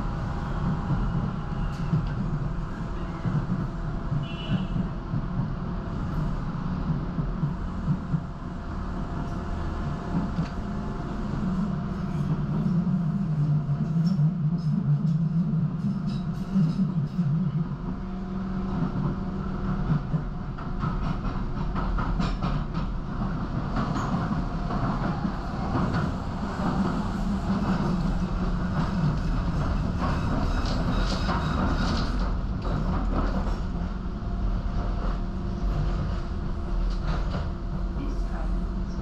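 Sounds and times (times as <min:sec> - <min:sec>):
train wheels rumbling on track: 0:00.0 - 0:39.0
rail joint clicks: 0:00.3 - 0:10.8, 0:11.9 - 0:38.1.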